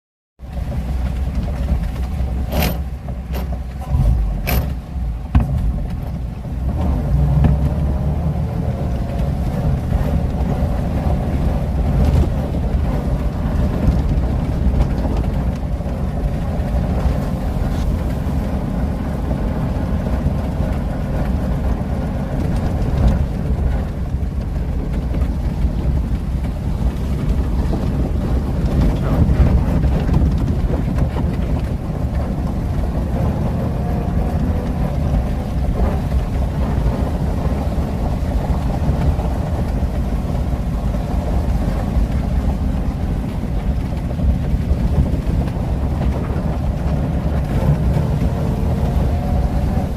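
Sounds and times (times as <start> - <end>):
car engine rumbling: 0.4 - 49.9
engine knocks: 0.4 - 49.9.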